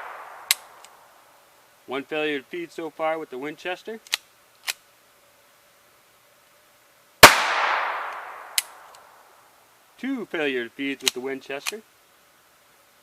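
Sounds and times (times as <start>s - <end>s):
pistol clicks: 4.0s - 4.8s, 7.2s - 9.1s
pistol shot with ringing echo: 7.2s - 8.9s.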